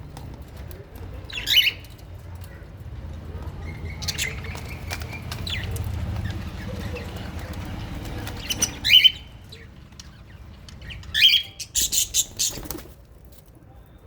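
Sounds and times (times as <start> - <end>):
parrots shrill calls: 8.4 - 9.3
wing flapping: 11.8 - 13.2.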